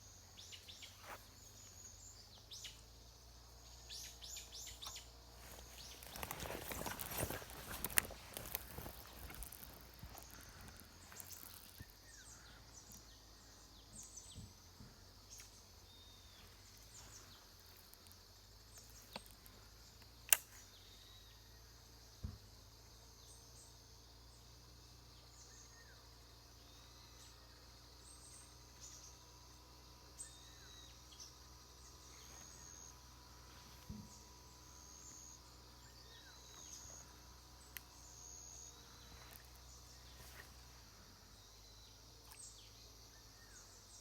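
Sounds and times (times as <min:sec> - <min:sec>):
bird chirps: 0:03.6 - 0:14.6.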